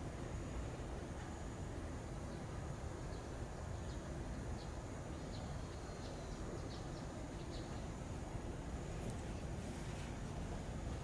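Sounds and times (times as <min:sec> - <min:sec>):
low outdoor rumble: 0:00.0 - 0:11.0
small bird chirping: 0:02.3 - 0:08.1.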